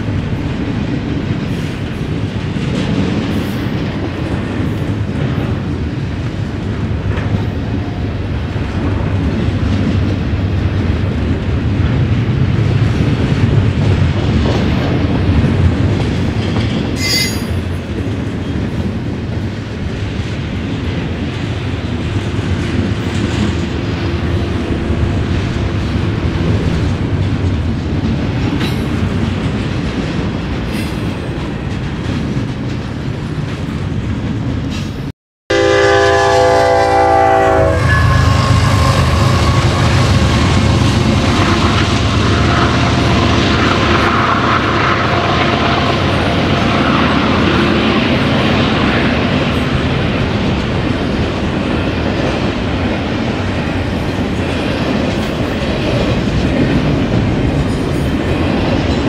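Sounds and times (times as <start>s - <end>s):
freight train wheels clicking: 0.0s - 35.1s, 38.1s - 59.0s
high-pitched wheel squeal: 17.0s - 17.6s, 37.7s - 40.3s.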